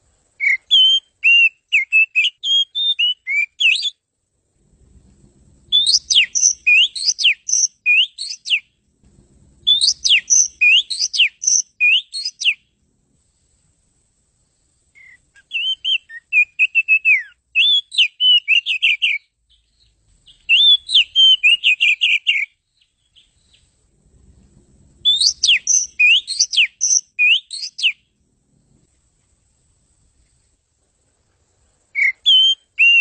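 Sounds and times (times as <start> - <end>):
bird singing whistled phrases: 0.4 - 4.0, 5.7 - 8.7, 9.7 - 12.6, 15.0 - 23.7, 25.0 - 28.0, 31.9 - 33.0.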